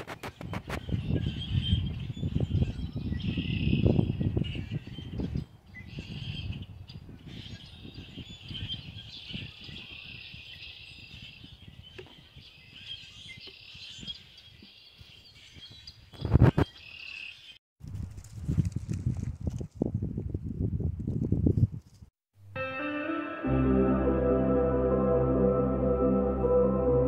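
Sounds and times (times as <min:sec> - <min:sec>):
songbirds chirping: 0:00.4 - 0:17.6.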